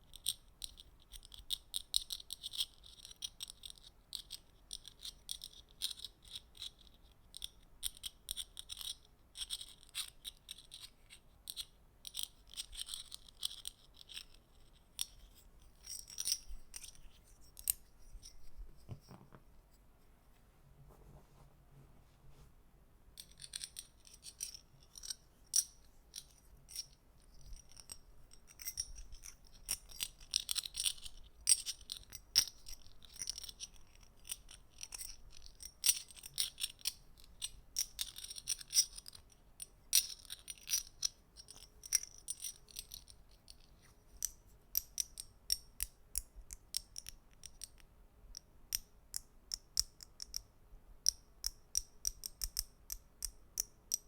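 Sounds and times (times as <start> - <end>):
small hard objects clicking: 51.0 - 54.0.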